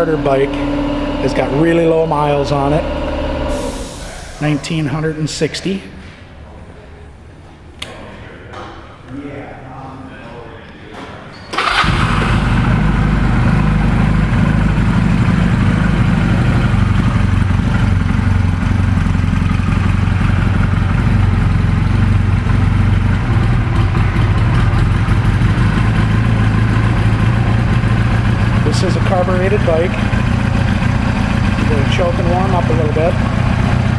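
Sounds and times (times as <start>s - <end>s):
motorcycle engine idling: 11.6s - 33.9s.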